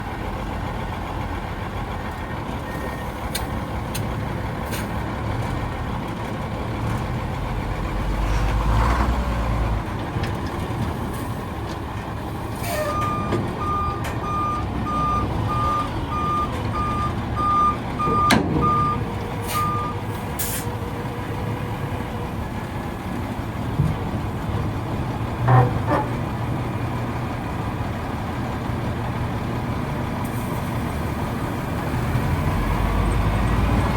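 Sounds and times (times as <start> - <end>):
diesel truck engine running: 0.0 - 33.9
back-up alarm beeping: 12.8 - 19.0, 19.6 - 20.0.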